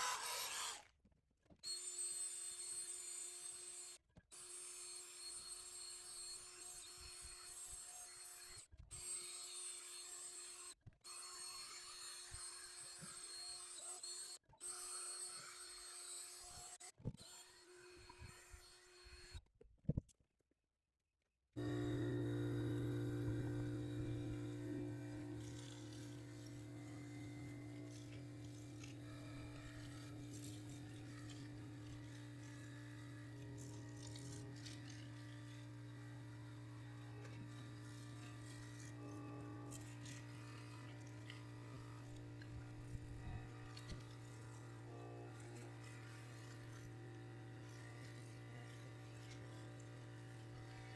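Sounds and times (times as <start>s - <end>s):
abrasive disc sanding metal: 21.6s - 50.9s
faint scraping and rubbing: 21.6s - 50.9s
steady low hum: 21.6s - 50.9s.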